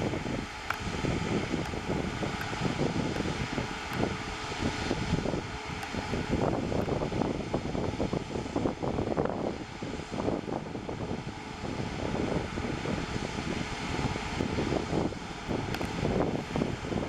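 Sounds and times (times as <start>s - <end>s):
jet engines rumbling: 0.0s - 17.0s
wind buffeting microphone: 0.0s - 17.0s.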